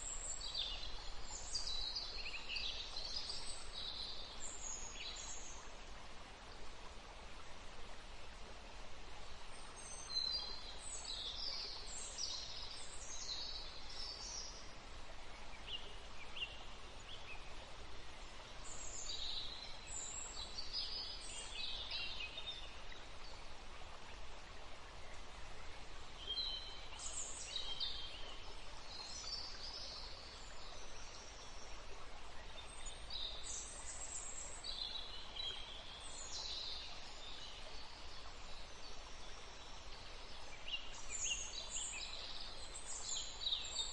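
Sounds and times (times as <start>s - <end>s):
steady background hiss: 0.0s - 43.9s
songbirds singing: 24.8s - 43.9s.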